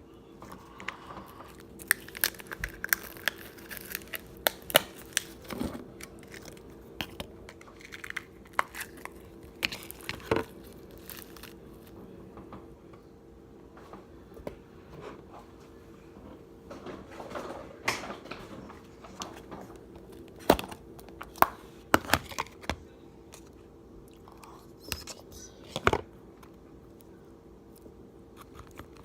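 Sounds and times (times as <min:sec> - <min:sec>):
faint steady hum: 0:00.0 - 0:29.0
slime squishing: 0:00.4 - 0:11.9.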